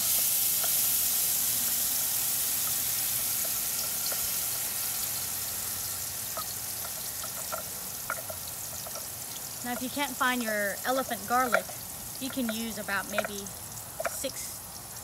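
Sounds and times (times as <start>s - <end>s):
paste sizzling in hot oil: 0.0s - 15.0s.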